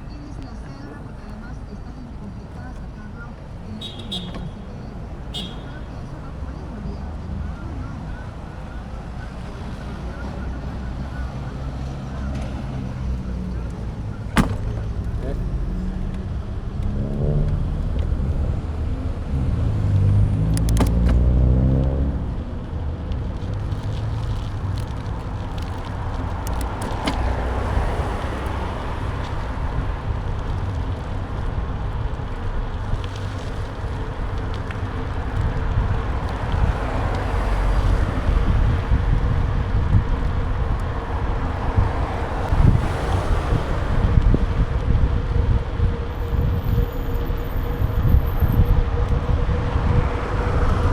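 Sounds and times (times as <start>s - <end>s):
wind and road rumble: 0.0s - 50.9s
engine revving: 14.4s - 22.4s.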